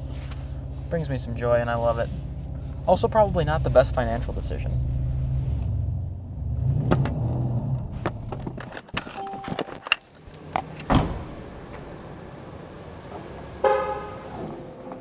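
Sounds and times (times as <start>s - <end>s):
car engine idling: 0.0s - 6.6s
car door shutting: 10.6s - 11.9s.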